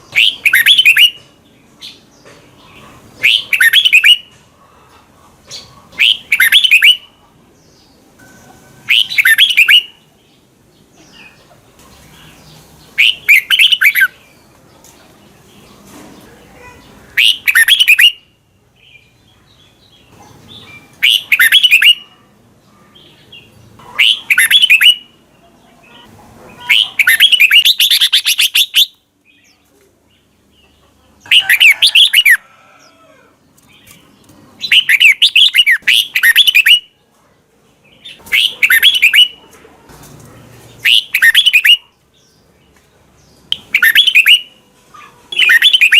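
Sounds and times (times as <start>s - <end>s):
bird singing quick phrases: 0.1s - 1.2s, 6.0s - 7.2s, 8.9s - 10.1s, 12.3s - 14.2s, 16.8s - 18.4s, 20.5s - 22.0s, 24.0s - 25.2s, 26.6s - 29.6s, 34.6s - 36.9s, 38.0s - 39.4s, 40.8s - 42.4s, 43.2s - 44.6s, 45.3s - 45.9s.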